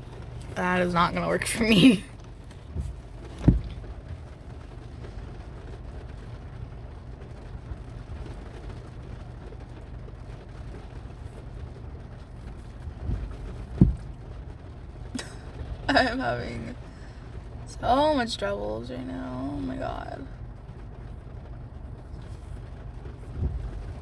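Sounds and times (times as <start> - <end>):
low rumble: 0.0 - 24.0
short dull thumps: 2.7 - 3.9, 13.0 - 14.2.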